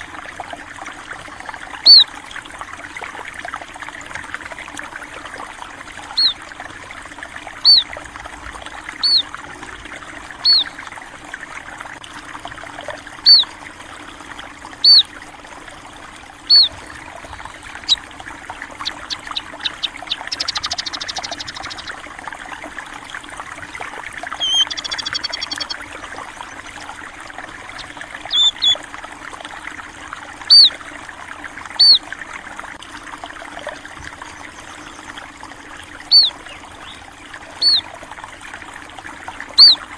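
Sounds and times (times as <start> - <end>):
stream water trickling: 0.0 - 39.9
small bird chirping: 1.8 - 2.1, 6.1 - 6.4, 7.6 - 7.9, 9.0 - 9.3, 10.4 - 10.7, 13.2 - 13.5, 14.8 - 15.1, 16.5 - 16.8, 17.8 - 18.0, 18.6 - 22.0, 24.4 - 25.9, 27.7 - 28.8, 30.5 - 30.7, 31.8 - 32.0, 36.1 - 37.0, 37.6 - 37.8, 39.6 - 39.8
ticking bird notes: 9.0 - 9.3, 17.6 - 22.0, 24.4 - 25.9, 27.6 - 28.8
short buzzy trills: 27.7 - 28.8.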